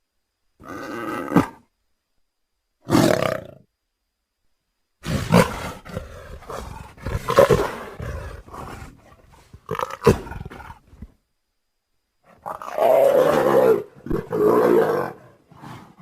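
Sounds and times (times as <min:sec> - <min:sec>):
leopard growling roars: 0:05.0 - 0:11.1, 0:12.3 - 0:16.0.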